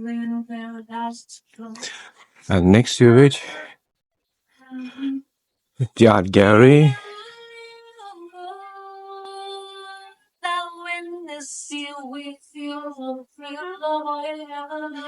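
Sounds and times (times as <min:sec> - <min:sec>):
woman singing slow melody: 0:00.0 - 0:01.9, 0:04.6 - 0:05.2, 0:07.0 - 0:15.0.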